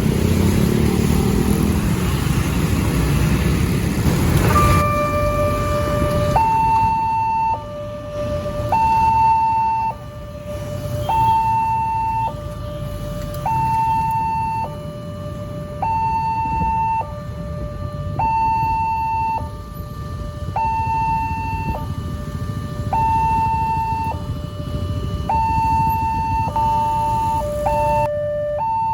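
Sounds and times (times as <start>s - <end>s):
level crossing two-tone alarm: 4.4s - 28.9s.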